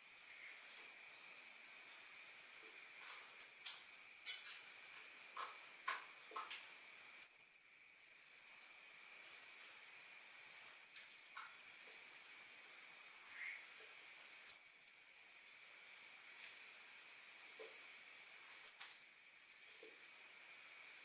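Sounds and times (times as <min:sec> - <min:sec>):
faint high whine: 0:00.0 - 0:21.0
bird whistle calls: 0:03.4 - 0:04.3, 0:07.2 - 0:08.4, 0:10.6 - 0:11.8, 0:14.5 - 0:15.6, 0:18.7 - 0:19.6.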